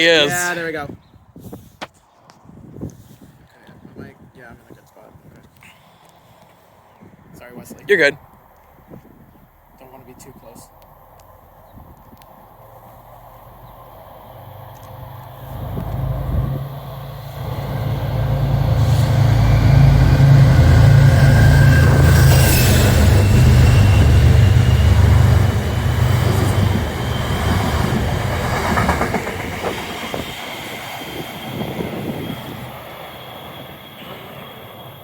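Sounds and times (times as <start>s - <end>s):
wheels whining on rail: 10.8s - 35.0s
train passing rumble: 12.2s - 35.0s.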